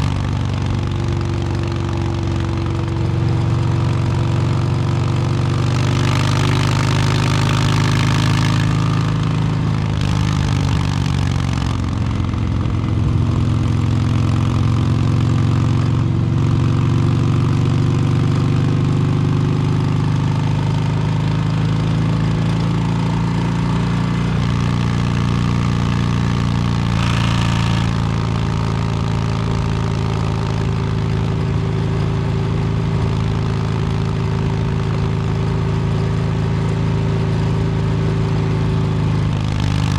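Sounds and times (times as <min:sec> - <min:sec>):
motorcycle engine revving: 0:00.0 - 0:39.9
bursts of rushing noise: 0:26.9 - 0:28.2.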